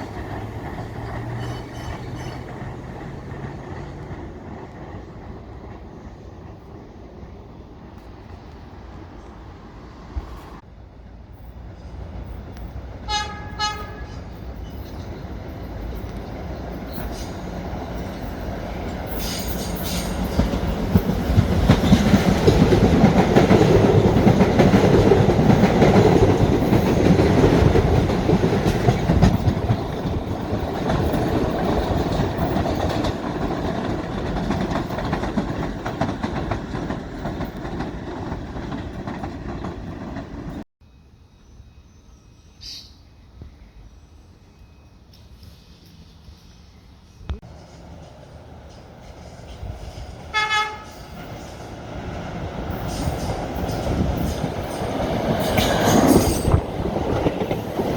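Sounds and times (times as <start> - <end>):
train rumbling past: 0.0 - 57.9
train horn toots: 13.0 - 14.4, 50.3 - 51.4.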